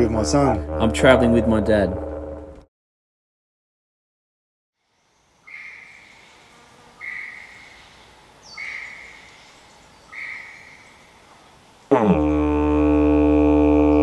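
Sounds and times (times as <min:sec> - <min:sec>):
faint background hiss: 0:04.8 - 0:12.0
bird whistled notes: 0:10.1 - 0:10.8.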